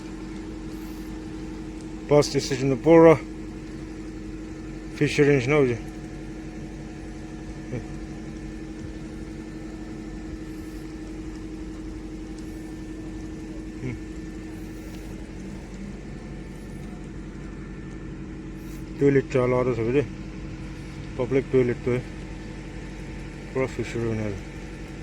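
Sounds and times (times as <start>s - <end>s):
vehicle engine running: 0.0s - 25.0s.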